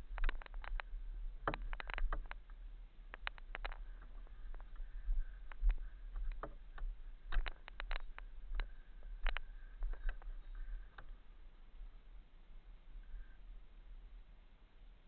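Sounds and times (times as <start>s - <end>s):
bike knocks and rattles: 0.0s - 2.5s, 3.2s - 10.9s.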